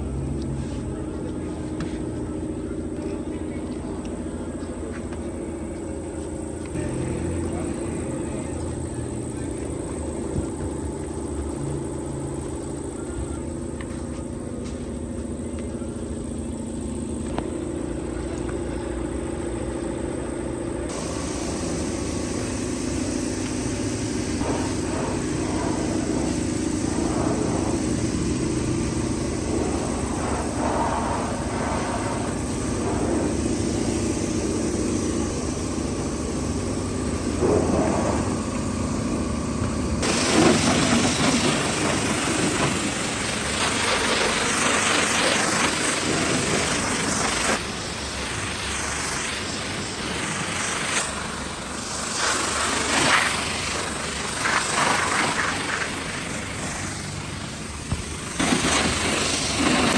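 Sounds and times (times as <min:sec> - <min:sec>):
car engine running: 0:00.0 - 0:59.9.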